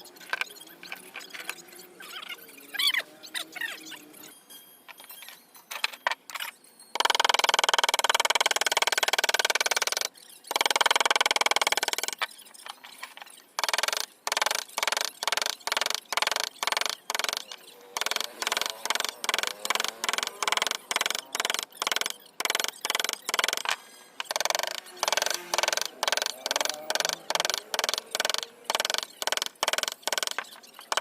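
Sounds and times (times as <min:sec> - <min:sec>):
tool scraping wood: 0:10.5 - 0:31.0.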